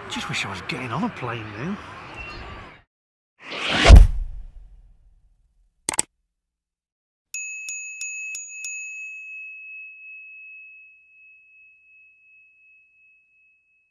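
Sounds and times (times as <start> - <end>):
small bell ringing: 7.4 - 13.9.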